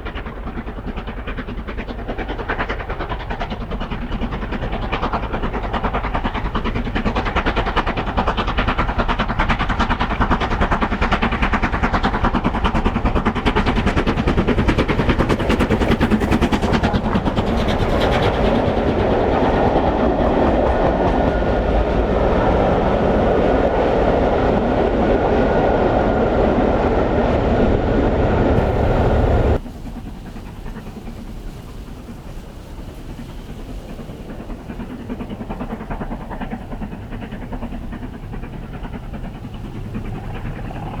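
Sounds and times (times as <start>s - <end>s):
steam train clattering past: 0.0s - 41.0s
steady rumble: 13.8s - 31.8s.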